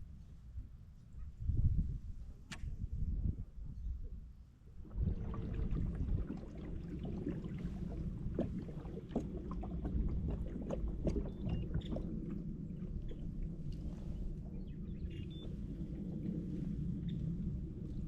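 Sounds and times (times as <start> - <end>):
low rumble: 4.7 - 18.0.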